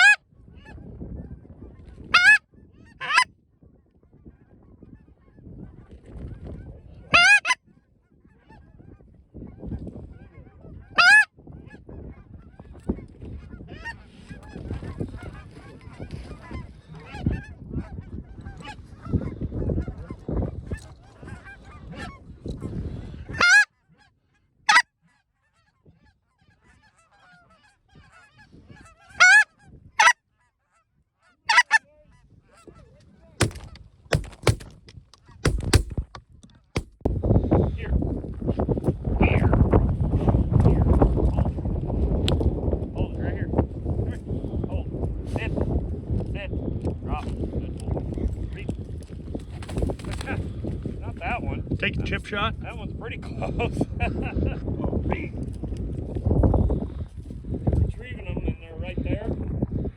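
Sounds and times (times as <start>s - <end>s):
goose honks and clucks: 0.0s - 0.8s, 2.1s - 3.3s, 7.0s - 7.6s, 8.3s - 12.7s, 13.4s - 22.2s, 23.2s - 34.6s
wind rumble on microphone: 0.0s - 23.4s, 27.8s - 30.0s, 31.9s - 59.9s.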